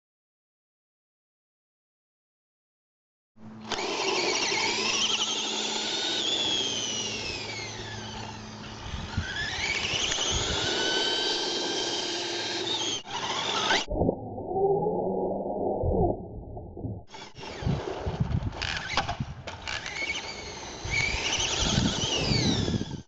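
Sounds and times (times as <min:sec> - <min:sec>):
electric toy truck motor whining: 0:03.6 - 0:13.9, 0:18.6 - 0:23.0.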